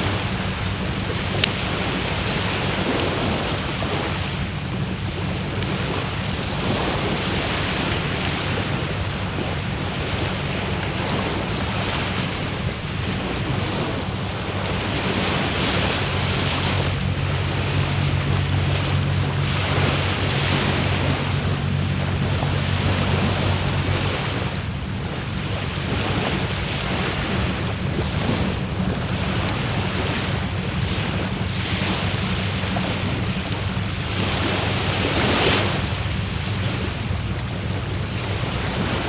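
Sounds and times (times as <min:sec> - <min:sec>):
fire crackling: 0:00.0 - 0:25.7, 0:27.5 - 0:35.0
flames rushing: 0:00.0 - 0:25.8
high whine: 0:00.0 - 0:39.0.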